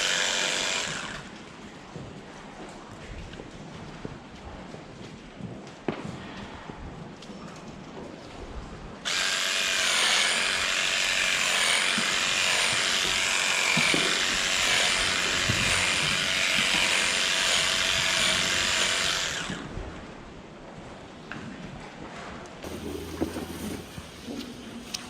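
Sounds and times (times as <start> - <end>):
power tool whining: 0.0 - 1.4, 9.1 - 19.7.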